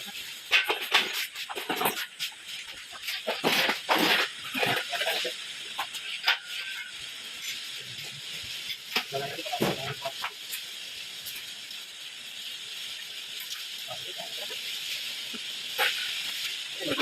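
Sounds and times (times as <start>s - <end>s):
steady hiss: 0.0s - 17.0s
indistinct voices: 4.4s - 6.9s, 9.0s - 10.3s, 13.8s - 14.7s, 16.6s - 17.0s.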